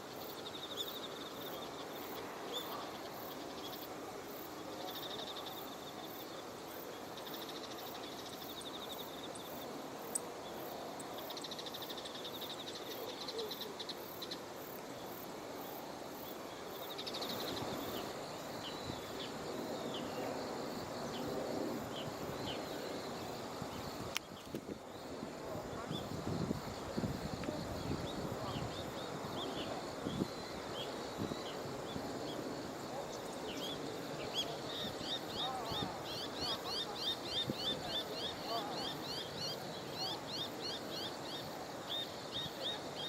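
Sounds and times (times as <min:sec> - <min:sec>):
insects trilling: 0:00.0 - 0:43.0
outdoor background noise: 0:00.0 - 0:43.0.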